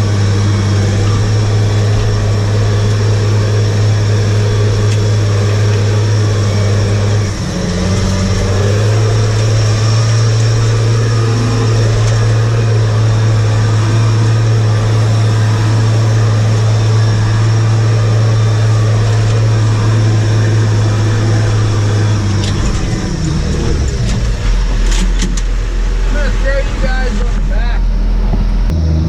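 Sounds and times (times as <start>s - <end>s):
large engine humming: 0.0s - 29.0s.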